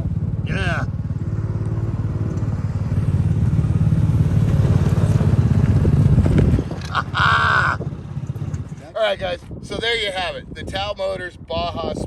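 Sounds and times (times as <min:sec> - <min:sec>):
go-kart engine running: 0:00.0 - 0:09.0.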